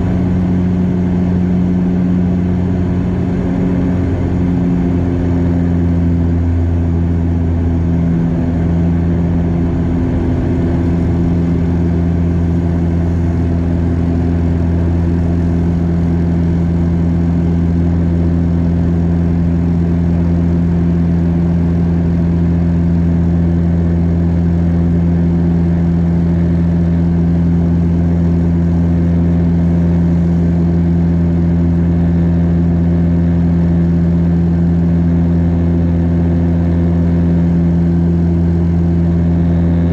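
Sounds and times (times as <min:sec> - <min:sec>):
turboprop cabin drone: 0:00.0 - 0:39.9.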